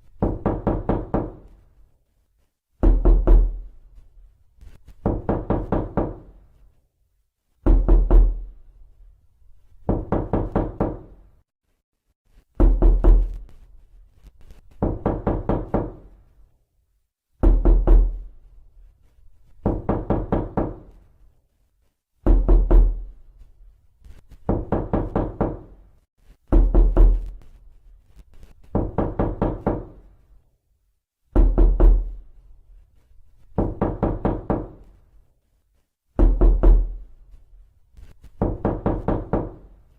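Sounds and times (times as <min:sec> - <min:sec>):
knocking on a door: 0:00.2 - 0:01.5, 0:02.8 - 0:03.7, 0:05.0 - 0:06.4, 0:07.6 - 0:08.5, 0:09.8 - 0:11.2, 0:12.6 - 0:13.4, 0:14.8 - 0:16.1, 0:17.4 - 0:18.3, 0:19.6 - 0:21.0, 0:22.2 - 0:23.1, 0:24.4 - 0:25.8, 0:26.5 - 0:27.4, 0:28.7 - 0:30.0, 0:31.3 - 0:32.2, 0:33.5 - 0:34.9, 0:36.2 - 0:37.0, 0:38.3 - 0:39.8.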